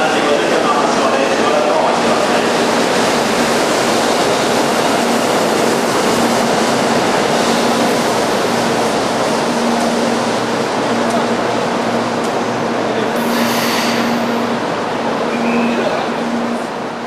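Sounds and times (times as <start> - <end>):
high-speed train rushing past: 0.0 - 17.0.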